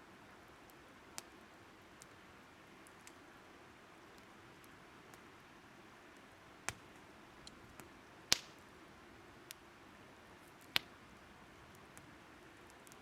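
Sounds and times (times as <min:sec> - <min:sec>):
faint steady hiss: 0:00.0 - 0:13.0
faint fire ticks: 0:00.6 - 0:02.2, 0:02.8 - 0:03.2, 0:04.0 - 0:05.3, 0:06.1 - 0:08.7, 0:09.4 - 0:09.6, 0:10.4 - 0:13.0
wood fire popping: 0:06.6 - 0:08.6, 0:10.6 - 0:11.0.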